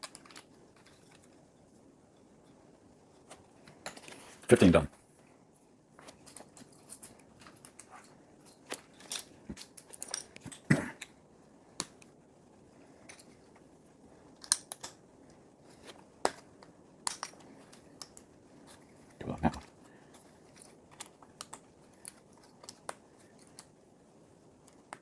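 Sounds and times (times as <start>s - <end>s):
plastic bricks clicking together: 14.3s - 15.0s.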